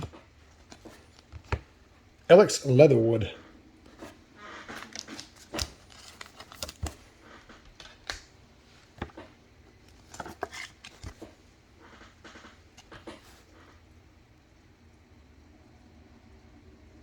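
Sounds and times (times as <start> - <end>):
trading cards clicking and rustling: 3.9 - 13.4.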